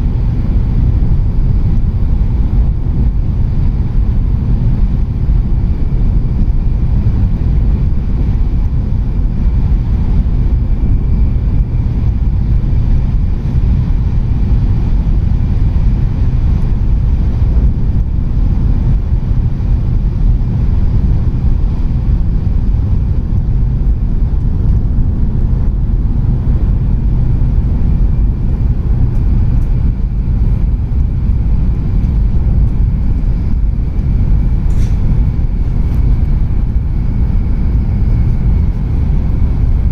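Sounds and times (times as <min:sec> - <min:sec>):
train cabin low rumble: 0:00.0 - 0:39.9.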